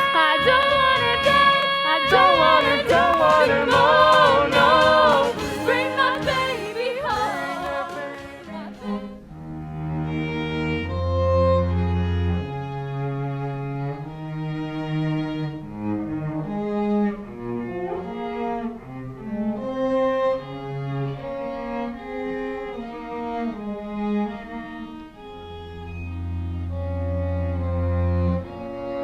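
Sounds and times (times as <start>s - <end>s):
pit orchestra playing: 0.0s - 9.2s.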